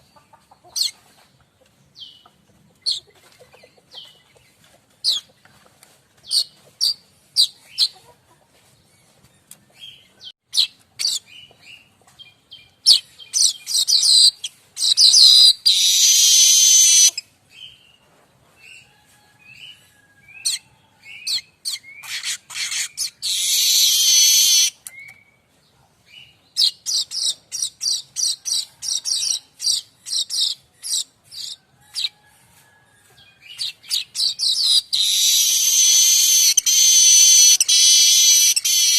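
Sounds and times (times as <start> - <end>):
bird chattering and buzzing song: 9.8 - 17.8, 20.4 - 25.2, 33.5 - 38.9.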